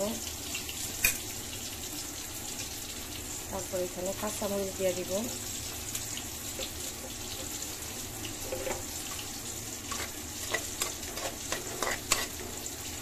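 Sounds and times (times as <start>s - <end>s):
food sizzling in oil: 0.0s - 13.0s
metal spatula scraping pan: 8.4s - 8.9s, 9.9s - 12.7s.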